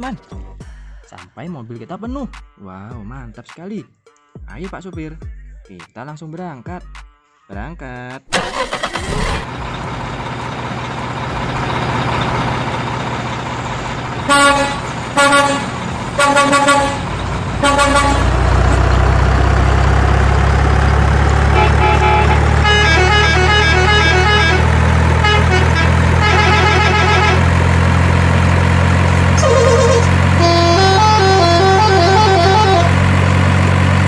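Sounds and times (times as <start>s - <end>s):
heavy truck engine running: 8.3s - 34.0s
truck horn toots: 14.2s - 18.8s, 21.2s - 27.9s, 29.3s - 33.2s
horn playing a tune: 14.3s - 18.4s, 21.5s - 27.5s, 29.4s - 33.0s.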